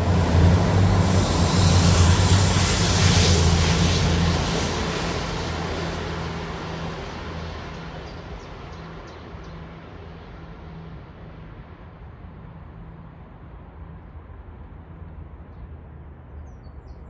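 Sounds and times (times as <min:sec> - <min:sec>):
diesel train engine hum: 0:00.0 - 0:12.5.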